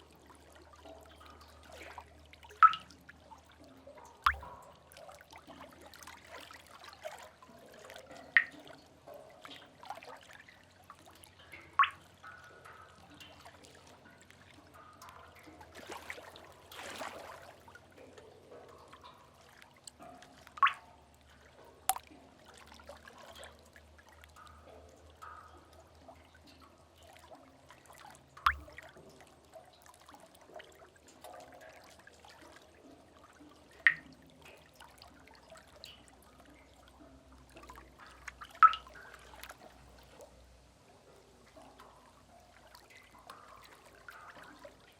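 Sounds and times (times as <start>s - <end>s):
faint water trickling: 0.0s - 44.9s
soft wash of water: 0.0s - 44.9s
water drops plinking: 2.6s - 2.9s, 4.3s - 4.6s, 8.4s - 8.6s, 20.6s - 20.8s, 28.5s - 28.8s, 33.8s - 34.1s, 38.6s - 39.0s.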